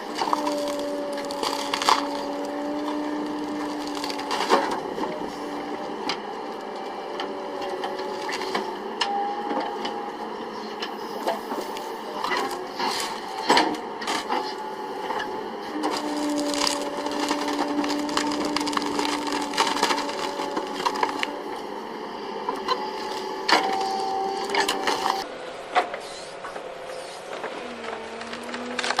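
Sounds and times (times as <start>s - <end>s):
wood cracking and splintering: 0.0s - 5.2s, 12.2s - 21.5s, 27.8s - 29.0s
machine humming: 0.0s - 25.8s.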